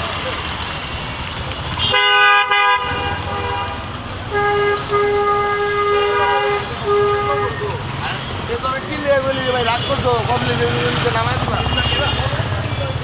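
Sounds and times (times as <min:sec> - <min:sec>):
vehicle horn honking: 0:01.8 - 0:08.4, 0:09.2 - 0:10.2, 0:11.5 - 0:12.6.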